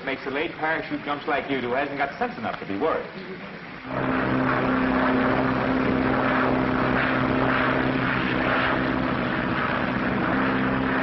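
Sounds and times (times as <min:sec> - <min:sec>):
propeller airplane engines droning: 0:03.8 - 0:11.0.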